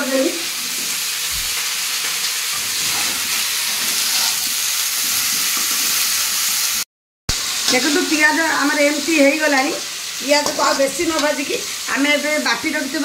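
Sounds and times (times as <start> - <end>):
vegetables sizzling in oil: 0.0 - 13.0
spatula stirring in pan: 2.5 - 6.0.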